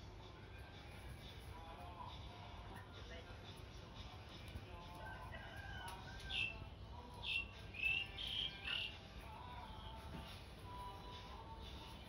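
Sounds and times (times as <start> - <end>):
short high bird chirps: 7.2 - 9.0.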